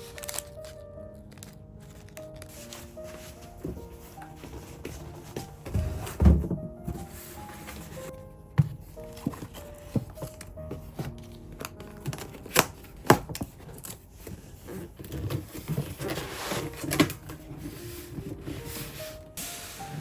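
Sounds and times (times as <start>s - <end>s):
paper or plastic rustling: 0.0s - 8.1s, 8.8s - 20.0s
soft background music: 0.0s - 20.0s
packaging taps and clicks: 8.6s - 14.4s.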